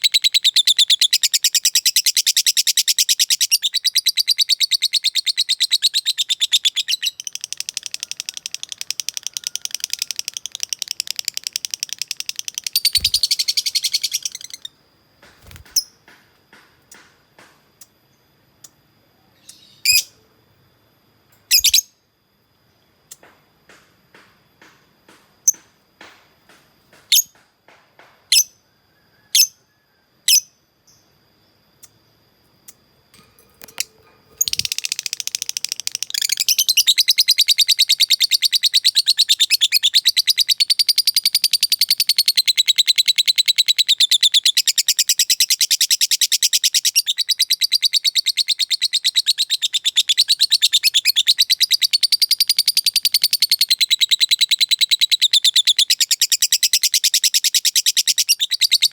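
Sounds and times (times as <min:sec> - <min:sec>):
lovebird chirping: 0:00.0 - 0:14.7, 0:18.6 - 0:20.2, 0:21.4 - 0:22.0, 0:33.6 - 0:58.9
rapid chattering bird trill: 0:04.6 - 0:14.7, 0:34.4 - 0:40.6.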